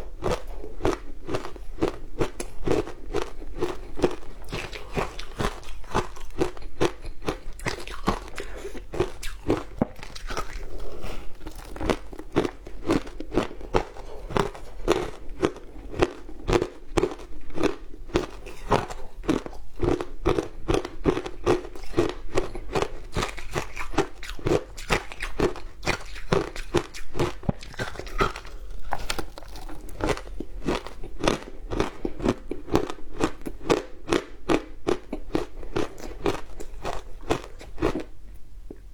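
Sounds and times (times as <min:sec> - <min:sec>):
ice crunching while chewed: 0:00.0 - 0:38.1.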